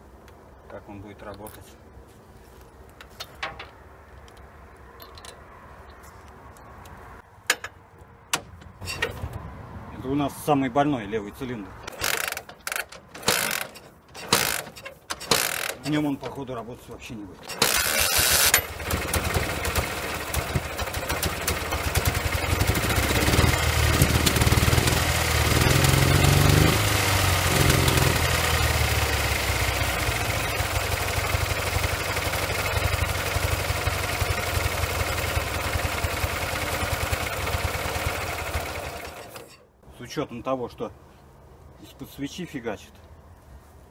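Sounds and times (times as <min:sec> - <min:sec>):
motorcycle engine revving: 0:17.6 - 0:39.3.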